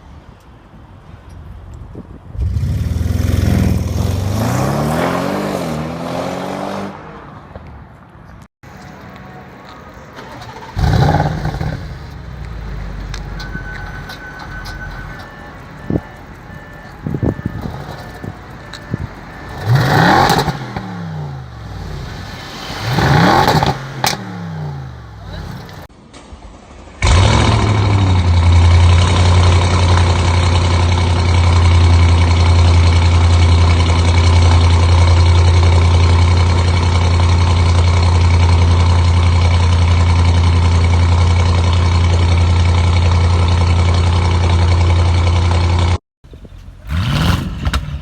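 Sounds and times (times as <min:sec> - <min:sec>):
car engine revving: 0:02.4 - 0:07.2, 0:10.1 - 0:25.9, 0:27.0 - 0:48.0
short sharp engine rev blips: 0:10.2 - 0:25.9, 0:46.3 - 0:48.0.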